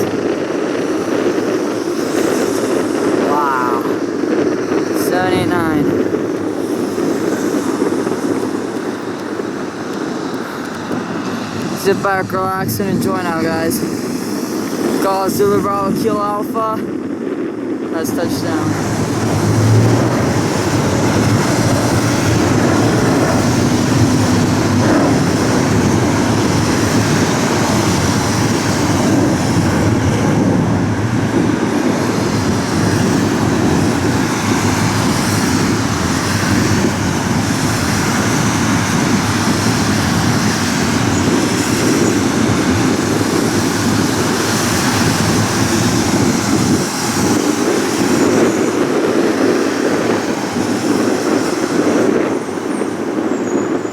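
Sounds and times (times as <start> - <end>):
jet engine rushing: 0.0 - 53.9.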